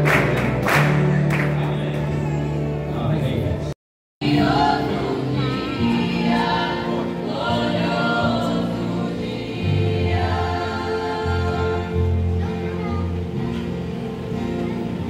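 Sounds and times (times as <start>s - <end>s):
choir singing worship song: 4.2s - 13.2s.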